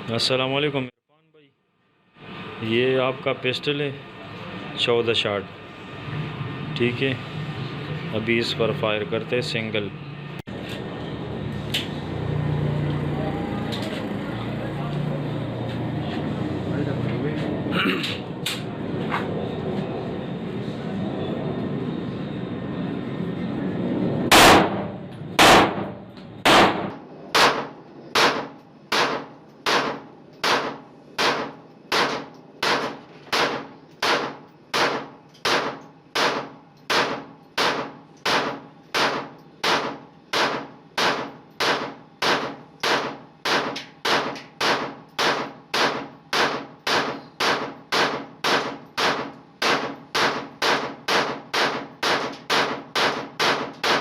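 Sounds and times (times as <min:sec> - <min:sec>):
steady background noise: 0:00.0 - 0:54.0
pistol shots ringing: 0:24.3 - 0:54.0.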